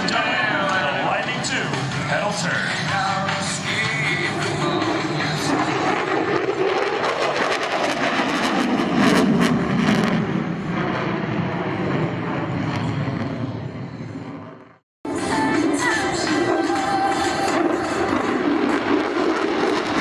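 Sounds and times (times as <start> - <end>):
jet engine roaring: 0.0 - 20.0
jet engine crackle: 2.7 - 14.8, 15.6 - 20.0.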